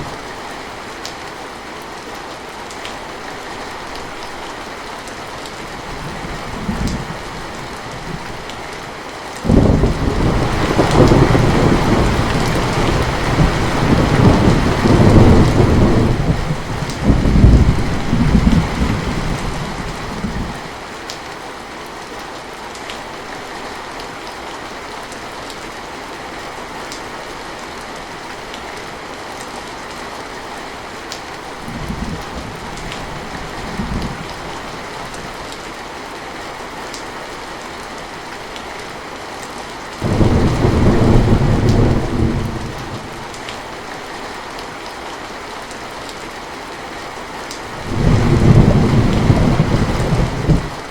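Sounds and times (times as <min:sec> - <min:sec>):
heavy rain falling: 0:00.0 - 0:50.9
thunder rolling: 0:09.5 - 0:20.6, 0:40.0 - 0:43.3, 0:47.8 - 0:50.8.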